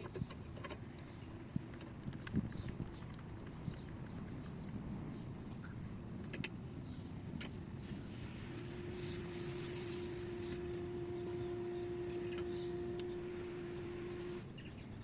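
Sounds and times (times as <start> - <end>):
steady hum: 0.0 - 15.0
refrigerant hissing: 7.7 - 14.4.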